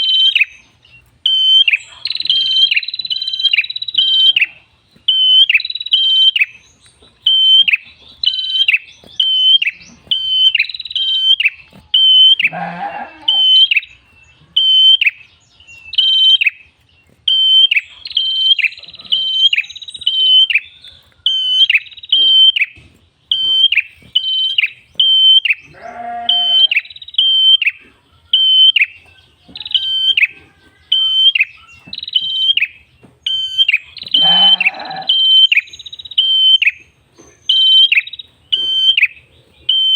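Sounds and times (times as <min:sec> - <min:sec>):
bird chirping song: 0:00.0 - 0:39.9
bird buzzy call: 0:30.9 - 0:36.8.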